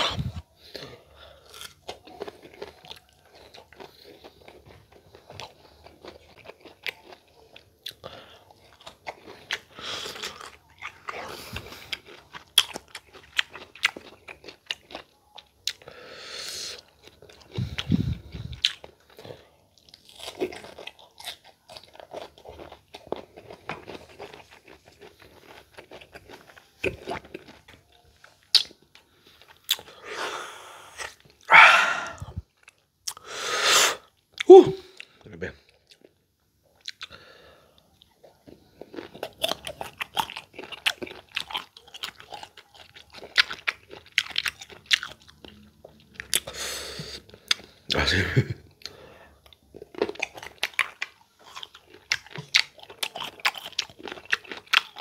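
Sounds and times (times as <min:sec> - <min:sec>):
wet mouth sounds: 0:00.0 - 0:00.8, 0:17.4 - 0:18.8, 0:29.7 - 0:35.1
crunching and chewing: 0:00.0 - 0:33.3, 0:34.0 - 0:55.0.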